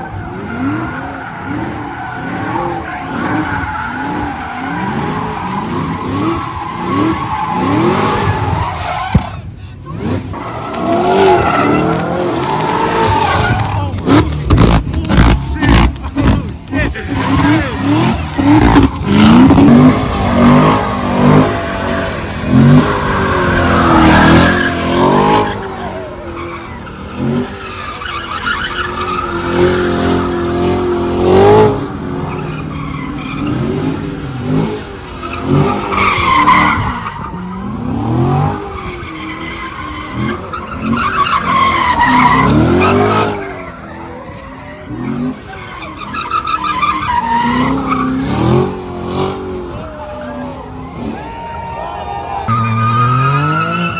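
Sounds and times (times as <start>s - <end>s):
car engines revving: 0.0s - 53.9s
tires squealing: 0.0s - 53.9s.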